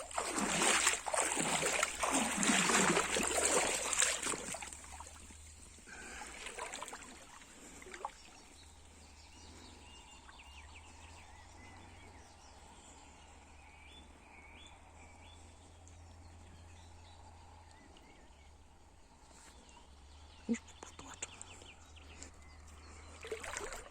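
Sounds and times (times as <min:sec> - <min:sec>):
water splashing and rushing: 0:00.0 - 0:08.2, 0:23.2 - 0:23.9
river trickling: 0:00.0 - 0:12.0, 0:22.4 - 0:23.9.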